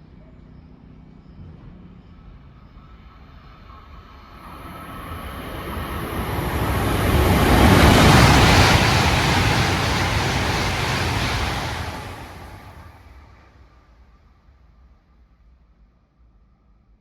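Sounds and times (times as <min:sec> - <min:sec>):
bullet train passing: 0:04.3 - 0:13.4.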